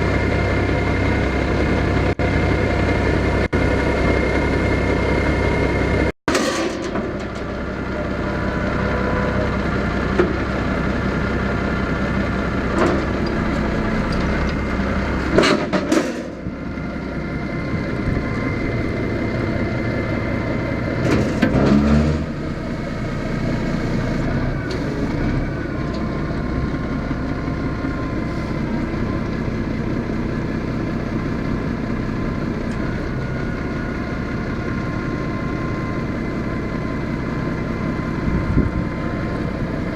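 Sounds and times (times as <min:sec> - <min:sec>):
truck engine idling: 0:00.0 - 0:21.4, 0:22.3 - 0:39.9
knocks and clunks: 0:15.2 - 0:16.6.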